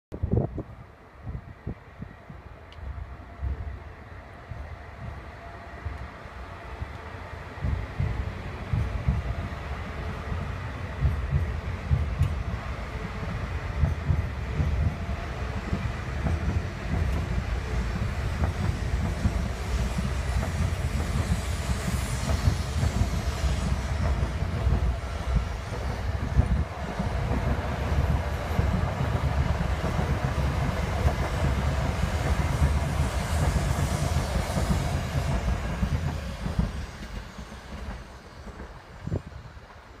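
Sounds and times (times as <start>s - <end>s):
train wheels rumbling and clattering: 4.5s - 40.0s
rushing hiss of passing cars: 17.3s - 39.9s.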